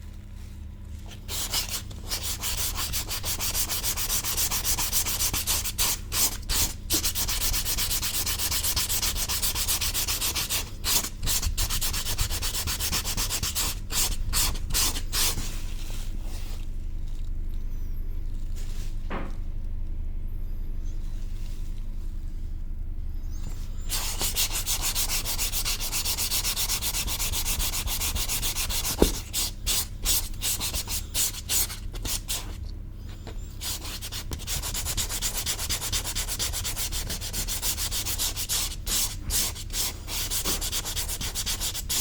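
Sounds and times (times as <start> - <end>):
sandpaper rubbing: 1.2 - 15.6, 23.9 - 32.3, 33.6 - 42.0.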